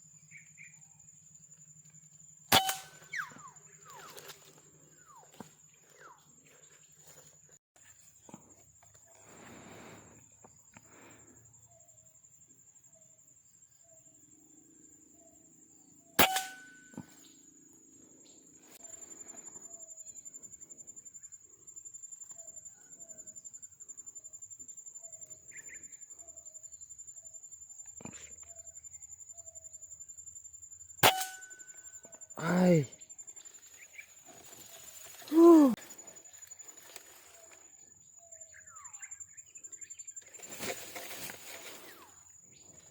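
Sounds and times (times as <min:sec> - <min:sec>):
insects high whine: 0:00.0 - 0:42.9
rapid pulsing insect call: 0:00.0 - 0:42.9
air rifle shot: 0:02.5 - 0:03.0, 0:16.2 - 0:16.8.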